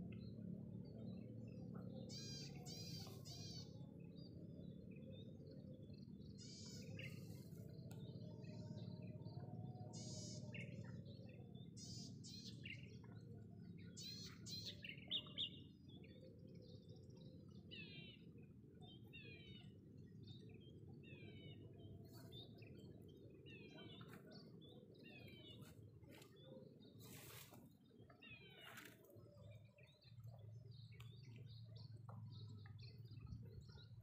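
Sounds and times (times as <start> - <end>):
low background rumble: 0.0 - 27.0
birds chirping: 0.0 - 34.0.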